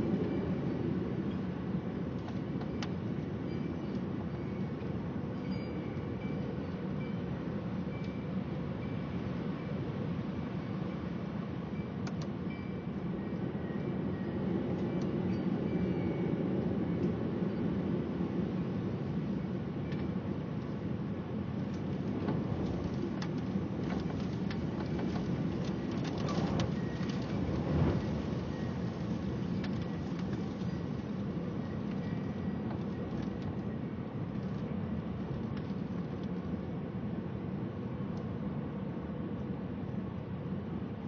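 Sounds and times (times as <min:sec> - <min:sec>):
wind: 0:00.0 - 0:41.0
steady rain: 0:21.9 - 0:32.0.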